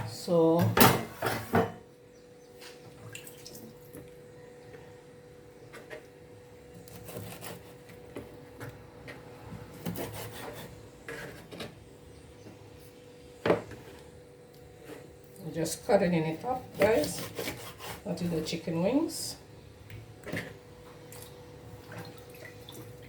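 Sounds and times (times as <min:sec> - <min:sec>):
knife cutting meat on board: 0:06.8 - 0:08.0, 0:09.7 - 0:11.4, 0:16.7 - 0:18.0.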